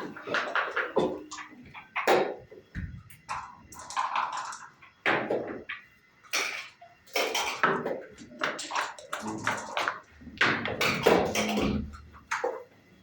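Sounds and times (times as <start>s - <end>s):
checkers and dice clacking on wood: 3.1s - 12.7s.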